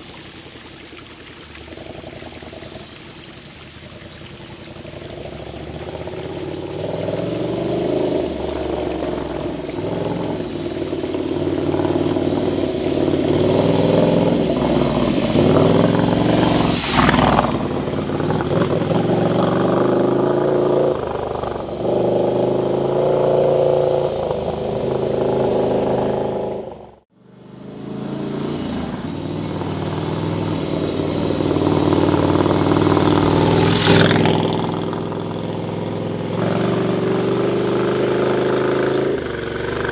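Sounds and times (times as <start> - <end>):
motorcycle engine revving: 0.0 - 39.9
brief rushing noise: 14.5 - 19.6.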